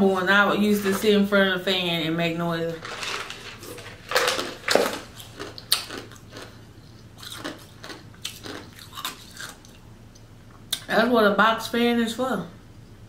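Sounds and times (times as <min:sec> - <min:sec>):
person chewing with wet smacks: 0:04.2 - 0:10.9.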